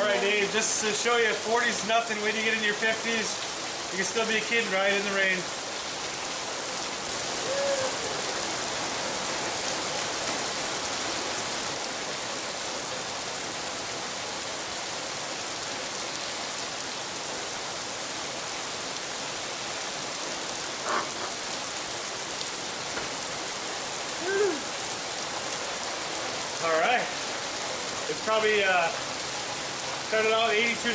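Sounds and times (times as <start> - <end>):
heavy rain: 0.0 - 30.9
high-pitched hoot-like calls: 24.2 - 24.7.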